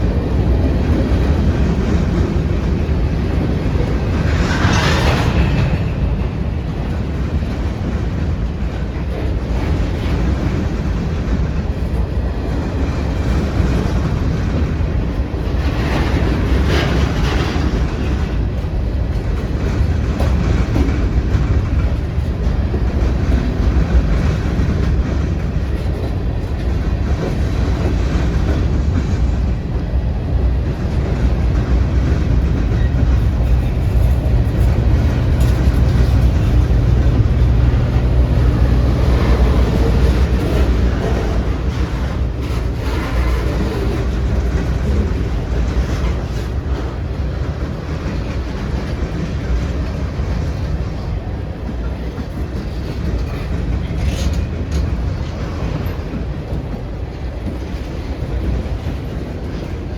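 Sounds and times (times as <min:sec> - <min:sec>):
train rattle: 0:00.0 - 0:59.9
train wheels rumbling on rails: 0:00.0 - 0:59.9.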